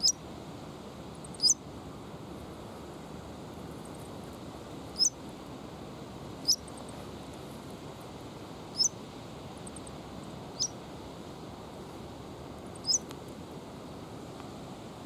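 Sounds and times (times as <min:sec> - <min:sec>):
small bird chirping: 0:00.0 - 0:00.2, 0:01.2 - 0:01.6, 0:05.0 - 0:05.2, 0:06.4 - 0:06.8, 0:08.8 - 0:09.0, 0:10.6 - 0:10.8, 0:12.7 - 0:13.1.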